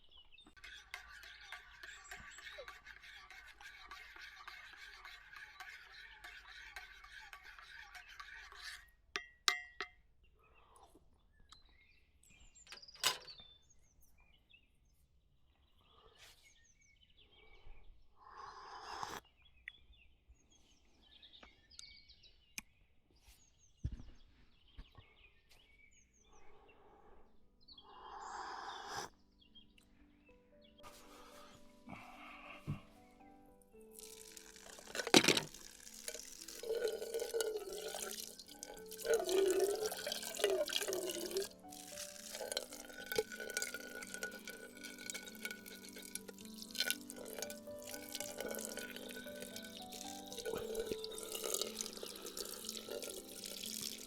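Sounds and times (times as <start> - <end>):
birds chirping: 0.0 - 8.9, 34.7 - 54.0.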